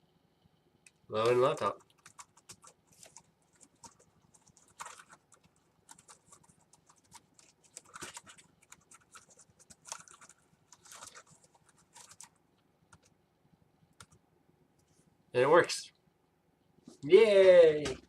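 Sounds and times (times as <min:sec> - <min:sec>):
laptop keyboard typing: 0:00.9 - 0:13.2, 0:13.9 - 0:14.2.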